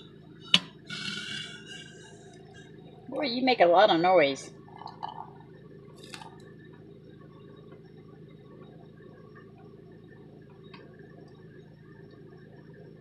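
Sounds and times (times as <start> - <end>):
constant low hum: 0.0 - 13.0
kettle water bubbling: 4.5 - 6.6.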